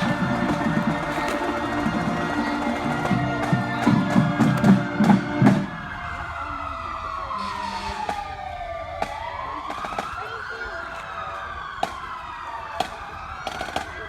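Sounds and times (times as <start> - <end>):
music with drum beats: 0.0 - 5.8
siren wailing: 0.0 - 14.0.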